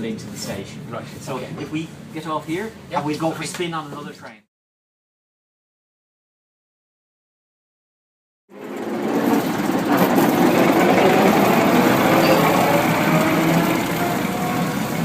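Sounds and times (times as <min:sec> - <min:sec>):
train engine running: 0:08.7 - 0:15.0.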